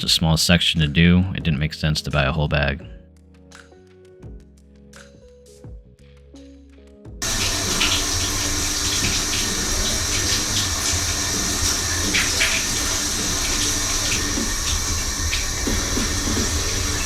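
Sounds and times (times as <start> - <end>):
water running from a tap: 7.2 - 17.0.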